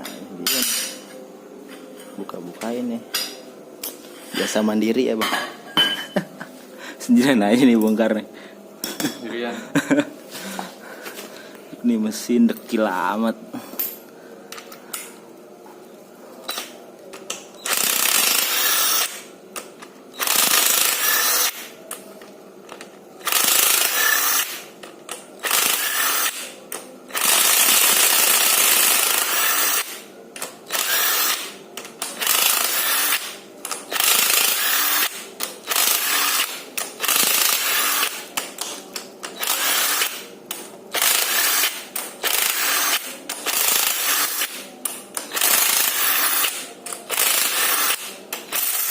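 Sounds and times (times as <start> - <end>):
impact wrench bursts: 17.6 - 19.3, 20.2 - 21.7, 23.2 - 24.6, 25.4 - 26.5, 27.1 - 30.0, 30.7 - 31.5, 32.2 - 38.2, 39.3 - 40.2, 40.9 - 44.6, 45.2 - 48.9.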